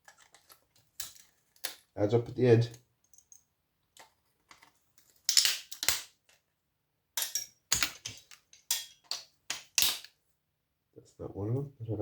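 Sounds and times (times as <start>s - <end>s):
circuit board parts snapping: 5.2s - 6.2s.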